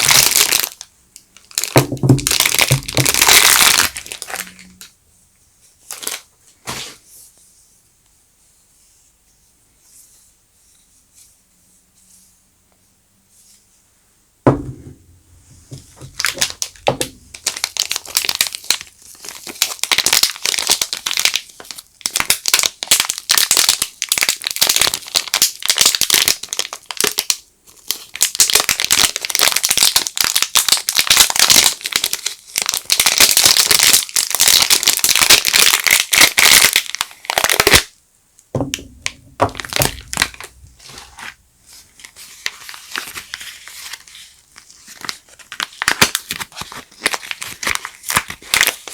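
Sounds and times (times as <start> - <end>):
soap wrapping crinkling and tearing: 0.0 - 4.9, 5.8 - 7.0, 15.7 - 37.9, 38.7 - 48.9.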